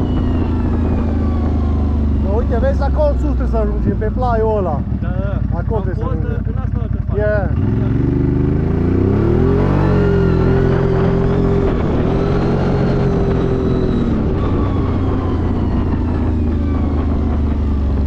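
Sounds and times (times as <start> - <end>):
atv engine under load: 0.0 - 9.9.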